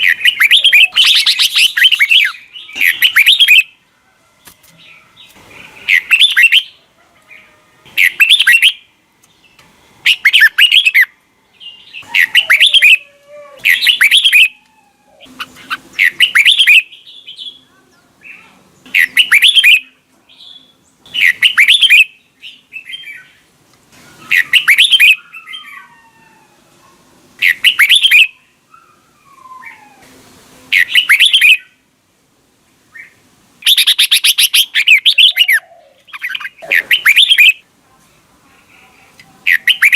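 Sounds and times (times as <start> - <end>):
bulbul singing: 0.0 - 3.8, 4.8 - 23.4, 24.2 - 25.6, 27.4 - 28.5, 30.7 - 31.8, 33.0 - 37.6, 39.0 - 39.9
faint bird calls: 10.0 - 30.1, 32.9 - 37.6, 38.6 - 39.9.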